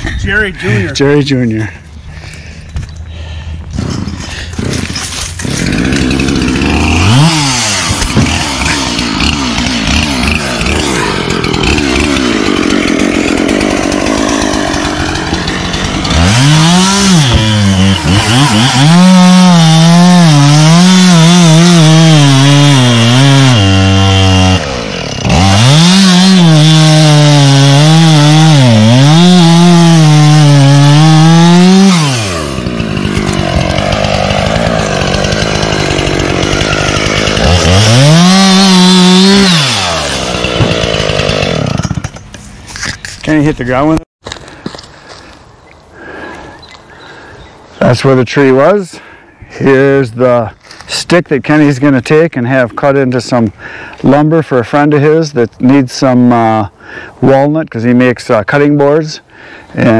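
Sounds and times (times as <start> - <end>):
chainsaw cutting wood: 3.7 - 45.4.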